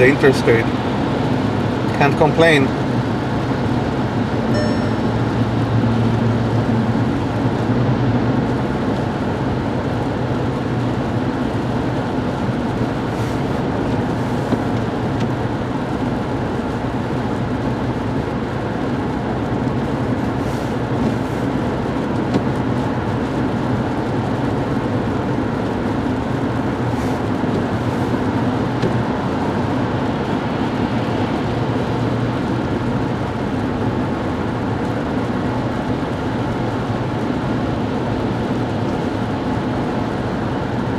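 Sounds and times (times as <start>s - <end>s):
car driving at highway speed: 0.0s - 40.9s.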